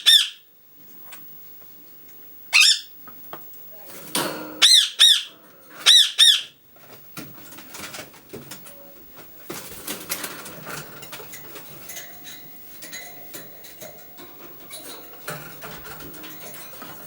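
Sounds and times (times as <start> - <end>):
parakeet soft calls: 0.0 - 0.4, 2.5 - 3.0, 4.6 - 6.6
beaks and claws clicking and scraping: 3.5 - 17.0.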